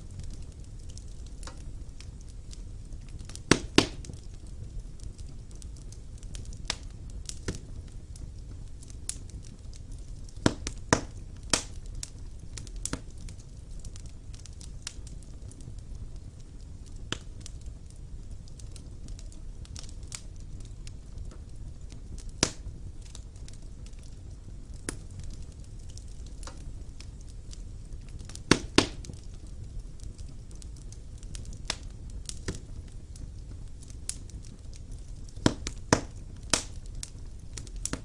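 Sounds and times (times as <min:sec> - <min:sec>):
burning logs crackling and popping: 0:00.0 - 0:38.0
fire flames rumbling: 0:00.0 - 0:38.0.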